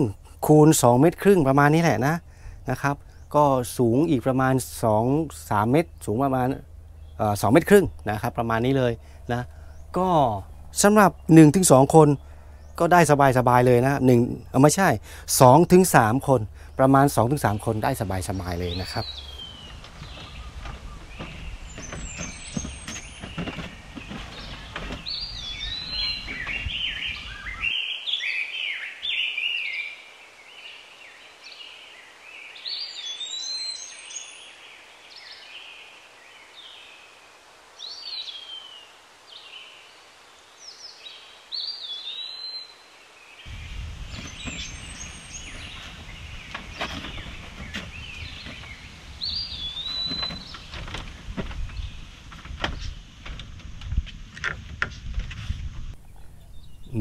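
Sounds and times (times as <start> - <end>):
birds whistling: 4.8 - 30.0, 32.5 - 35.6, 41.6 - 42.8, 43.5 - 53.0, 56.0 - 57.0
wind rumble on microphone: 15.6 - 27.7, 43.5 - 57.0.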